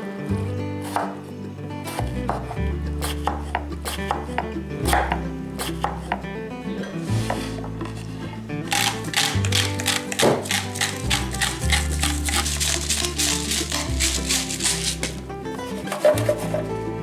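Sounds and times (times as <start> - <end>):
background music with slow bass: 0.0 - 17.0
knife chopping on cutting board: 0.8 - 1.2, 1.9 - 6.2, 7.1 - 8.0, 8.7 - 15.2, 15.8 - 16.6.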